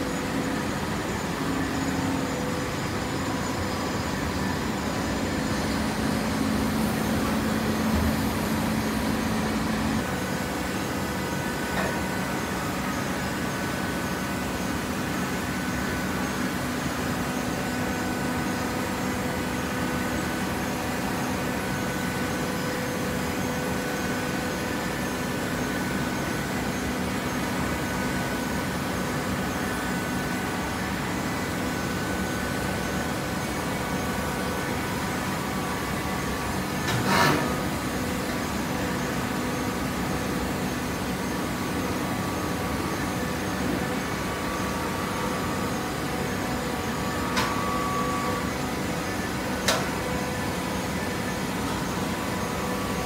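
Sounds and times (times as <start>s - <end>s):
baler machine hum: 0.0s - 16.6s.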